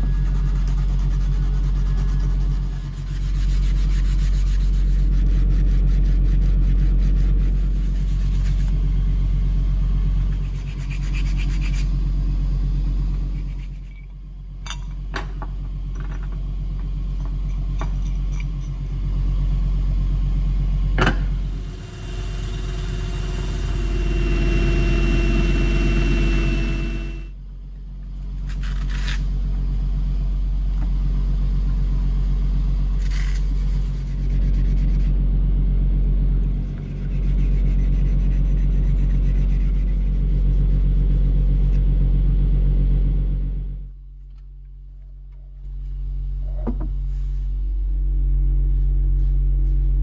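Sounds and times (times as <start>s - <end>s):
electric motor humming: 21.3s - 27.3s
abrasive rubbing on metal: 21.4s - 27.3s.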